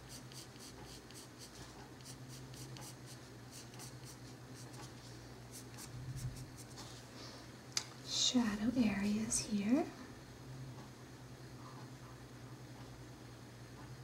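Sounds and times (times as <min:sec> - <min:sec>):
colored pencil scratching on paper: 0:00.0 - 0:06.8
low steady hum: 0:00.0 - 0:14.0.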